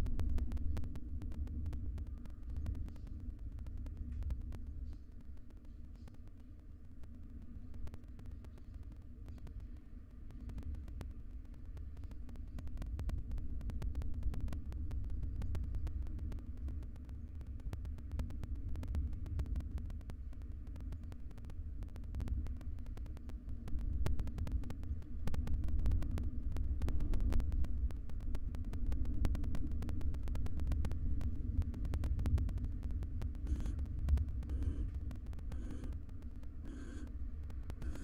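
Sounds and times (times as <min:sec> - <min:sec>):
faint clicks and scratches: 0:00.0 - 0:38.0
low hum and rumble: 0:00.0 - 0:38.0
owl snoring call hisses: 0:34.5 - 0:34.9, 0:35.5 - 0:36.0, 0:36.6 - 0:37.1.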